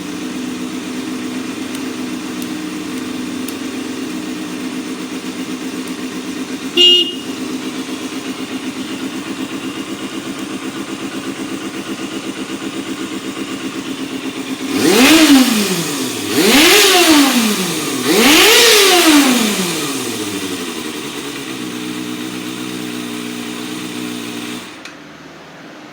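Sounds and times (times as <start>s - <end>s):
motorcycle engine idling and revving: 0.0s - 25.9s
loud beep: 6.8s - 7.4s.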